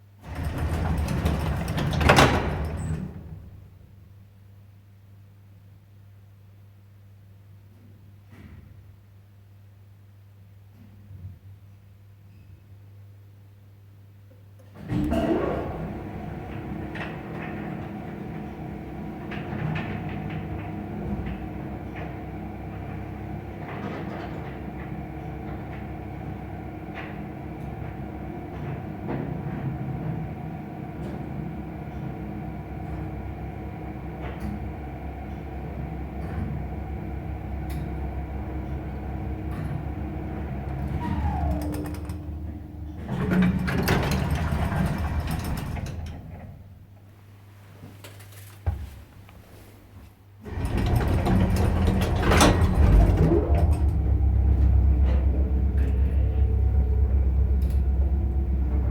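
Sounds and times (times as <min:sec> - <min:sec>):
elevator car rattling: 0:00.2 - 0:03.5, 0:14.9 - 0:46.8, 0:50.4 - 0:58.9
elevator doors rattling open: 0:00.2 - 0:03.6, 0:14.8 - 0:46.9, 0:50.4 - 0:58.9
elevator motor humming: 0:00.2 - 0:03.6, 0:14.8 - 0:47.0, 0:50.4 - 0:58.9.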